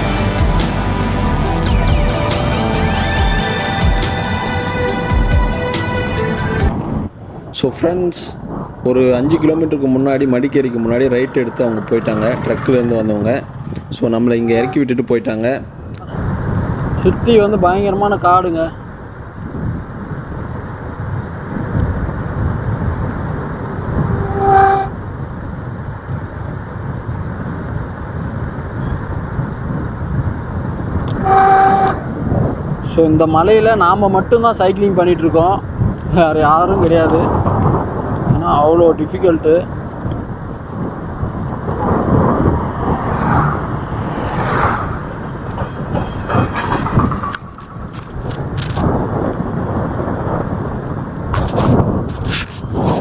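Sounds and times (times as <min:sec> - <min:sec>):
road traffic rumble: 0:00.0 - 0:53.0
wind buffeting microphone: 0:06.5 - 0:53.0
vehicle horn honk: 0:23.9 - 0:25.0, 0:31.2 - 0:32.1.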